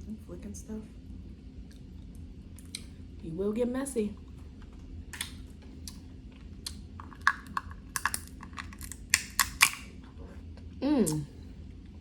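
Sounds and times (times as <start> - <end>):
crab shells cracking: 6.7 - 9.9.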